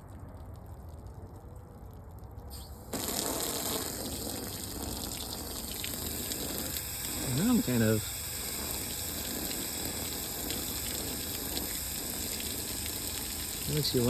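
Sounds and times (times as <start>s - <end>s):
garden hose spraying water: 2.5s - 14.0s.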